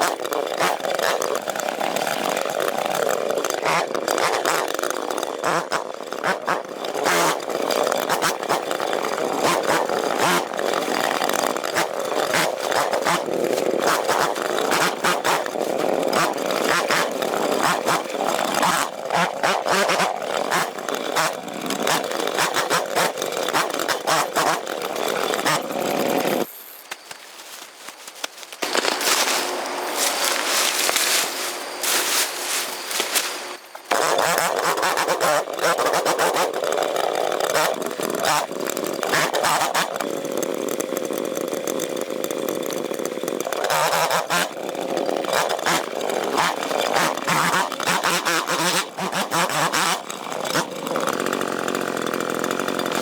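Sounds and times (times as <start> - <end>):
bamboo cracking: 0.0 - 53.0
chainsaw cutting bamboo: 0.0 - 53.0.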